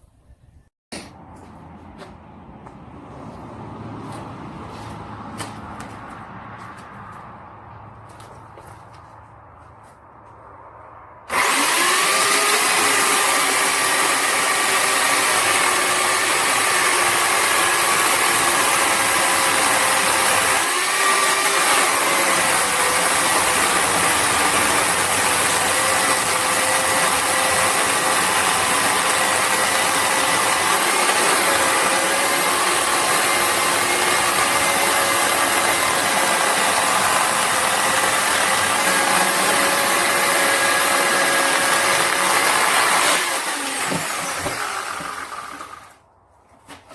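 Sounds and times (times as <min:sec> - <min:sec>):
electric chainsaw running: 0:11.3 - 0:46.0.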